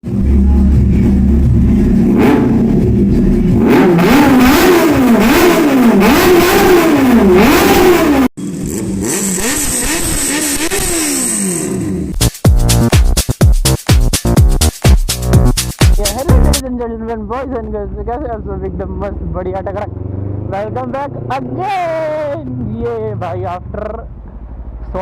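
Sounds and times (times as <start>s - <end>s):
motorcycle engine revving: 0.0s - 12.2s, 18.6s - 24.8s.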